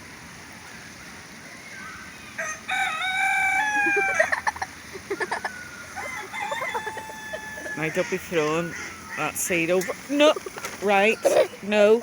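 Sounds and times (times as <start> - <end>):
rooster crowing: 2.3 - 4.6, 5.3 - 9.3.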